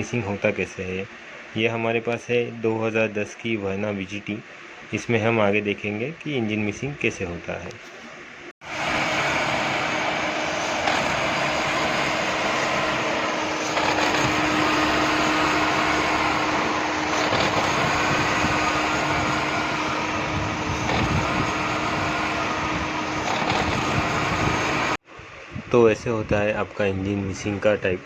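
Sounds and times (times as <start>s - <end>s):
steady hum: 0.0s - 28.0s
diesel engine running unevenly: 8.0s - 25.0s.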